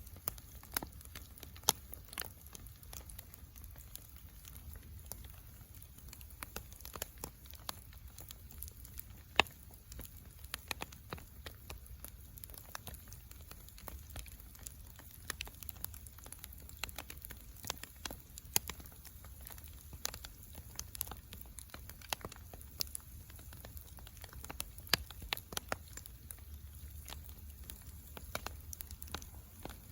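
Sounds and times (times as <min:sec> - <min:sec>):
wood fire crackling and popping: 0:00.0 - 0:29.9.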